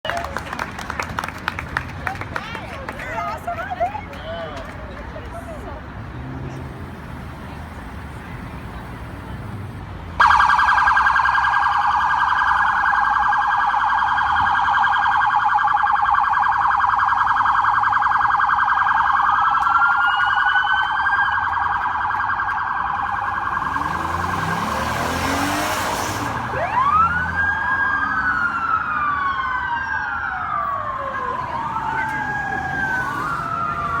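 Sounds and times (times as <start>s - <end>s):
warbling siren tone: 10.2s - 25.4s
wailing sirens: 10.2s - 34.0s.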